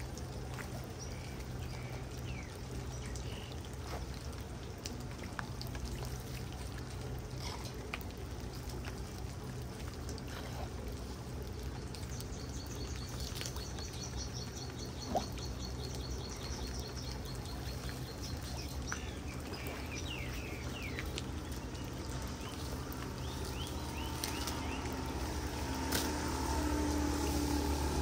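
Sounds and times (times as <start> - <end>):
birds chirping: 0.0 - 4.7, 10.3 - 28.0
low steady hum: 0.0 - 28.0
water pouring into storm drain: 0.0 - 28.0.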